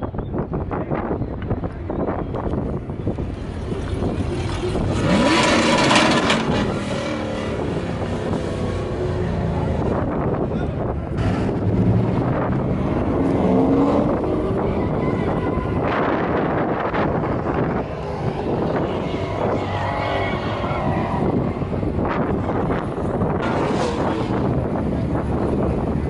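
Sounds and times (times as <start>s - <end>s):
vehicle engine revving: 3.1s - 26.0s.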